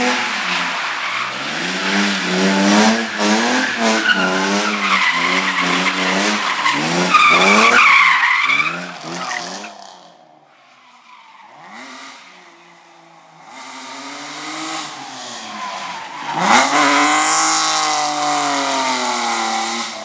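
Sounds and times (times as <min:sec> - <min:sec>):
car engine revving: 0:00.0 - 0:10.3, 0:11.5 - 0:20.0
tyres squealing: 0:00.1 - 0:09.7.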